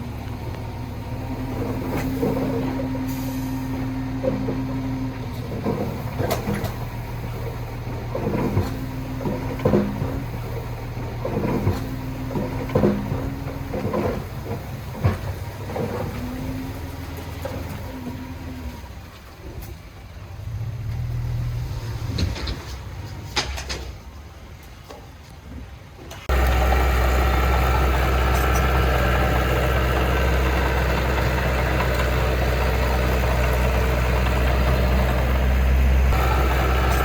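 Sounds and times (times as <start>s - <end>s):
heavy diesel machine running: 0.0s - 23.8s, 26.1s - 37.0s
metallic knocks and clanks: 22.1s - 24.0s.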